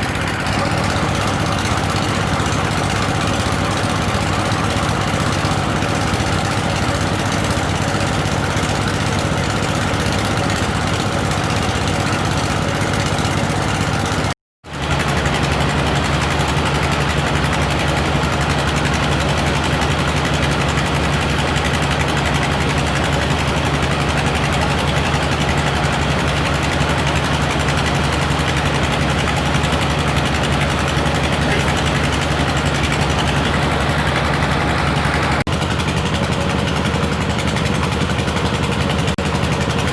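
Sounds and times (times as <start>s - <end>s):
drilling rig motor droning: 0.0s - 39.9s.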